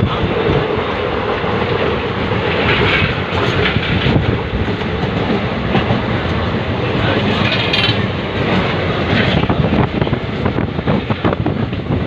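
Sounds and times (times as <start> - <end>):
train rumbling on a bridge: 0.0 - 12.0
faint rail clicks: 2.5 - 10.2.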